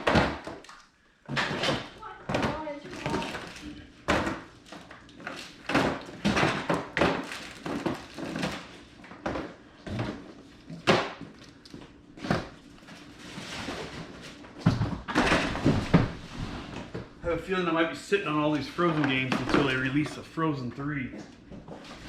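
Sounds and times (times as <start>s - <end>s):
boxes thudding: 5.6s - 11.4s, 13.4s - 17.2s.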